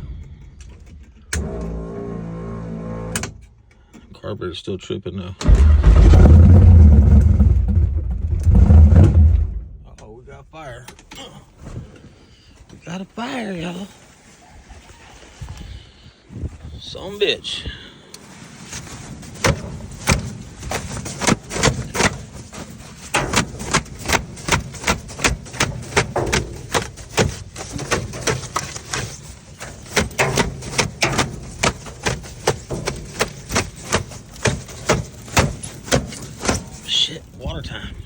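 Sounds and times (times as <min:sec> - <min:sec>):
sharp knocks and clatters: 0:05.4 - 0:10.1, 0:18.8 - 0:37.0
steady low rumble: 0:05.4 - 0:10.8.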